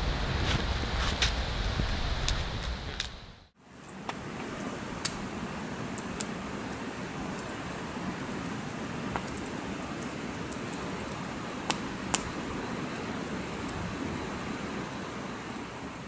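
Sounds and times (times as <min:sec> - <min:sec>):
wind through forest: 0:00.0 - 0:16.0.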